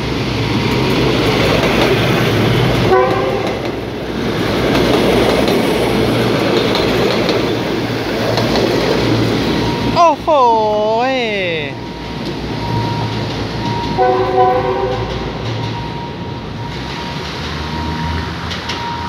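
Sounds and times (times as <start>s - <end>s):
diesel train passing: 0.0s - 19.0s
train horn toot: 2.9s - 3.6s, 14.0s - 15.4s.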